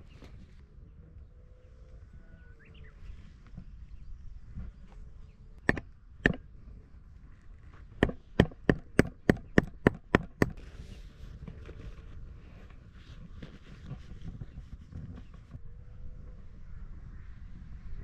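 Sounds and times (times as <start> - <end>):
hammer striking tent peg: 5.6 - 6.4, 8.0 - 10.6.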